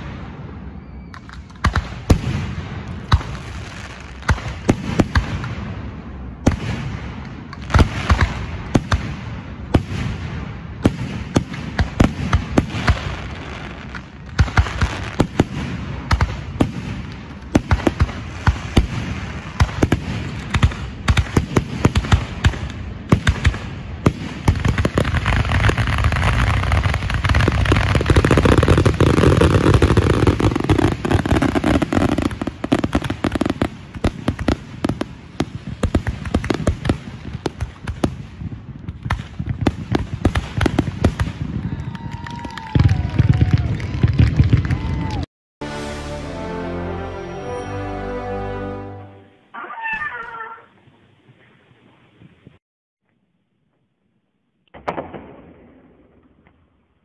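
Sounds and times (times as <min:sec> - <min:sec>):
firework crackle: 0:10.8 - 0:45.2.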